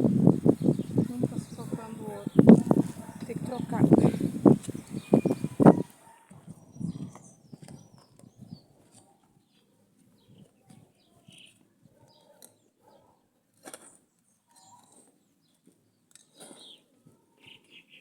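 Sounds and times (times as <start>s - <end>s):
faint bird chirps: 4.6s - 8.6s.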